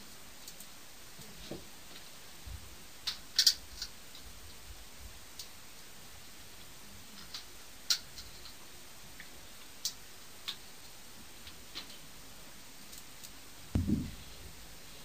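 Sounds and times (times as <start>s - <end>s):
faint steady hiss: 0.0s - 15.0s
sharp small clicks: 3.0s - 4.2s, 7.2s - 8.6s, 12.8s - 13.4s.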